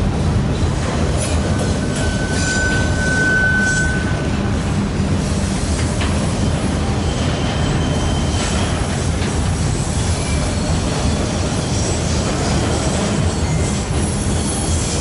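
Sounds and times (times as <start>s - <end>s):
train wheels rumbling on rail: 0.0s - 15.0s
faint wheel squeals: 1.8s - 4.2s, 7.0s - 8.8s.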